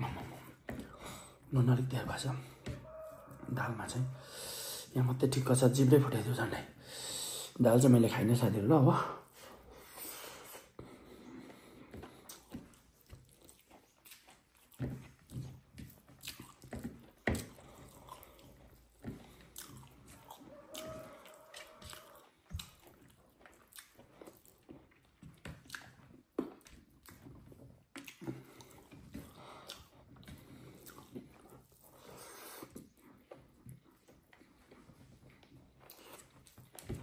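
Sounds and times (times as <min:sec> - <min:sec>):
wet chewing and mouth smacks: 0:09.2 - 0:37.0.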